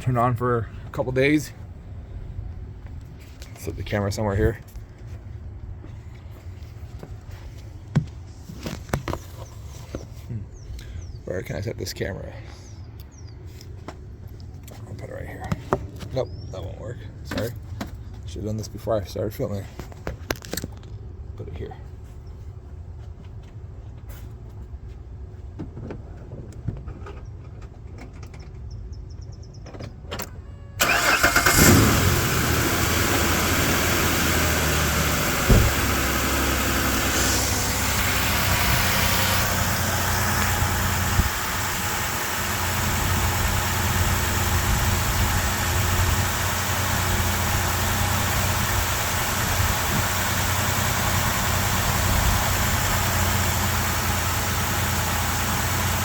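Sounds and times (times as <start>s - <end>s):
car engine starting and idling: 30.2s - 56.0s
thump: 35.4s - 36.0s.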